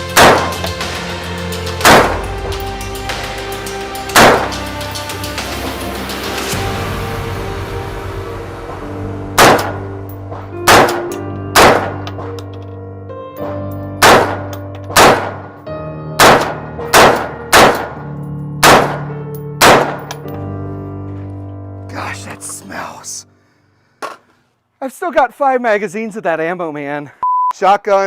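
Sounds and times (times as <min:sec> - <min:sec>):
rifle shots with ringing echo: 0:00.2 - 0:00.6, 0:01.8 - 0:02.2, 0:04.2 - 0:04.6, 0:09.4 - 0:09.8, 0:10.7 - 0:11.0, 0:11.6 - 0:12.1, 0:14.0 - 0:15.5, 0:16.2 - 0:18.0, 0:18.6 - 0:20.1.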